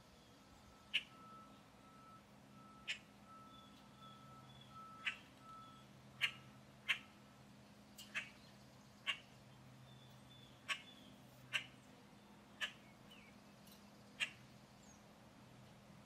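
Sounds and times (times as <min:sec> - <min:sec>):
bird calling: 0:00.6 - 0:02.0, 0:02.6 - 0:07.3, 0:08.0 - 0:11.9, 0:12.5 - 0:15.1.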